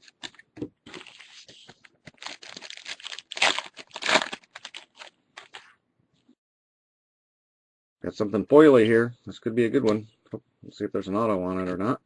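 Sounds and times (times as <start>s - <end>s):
foil wrapper crinkling: 0.9s - 5.7s.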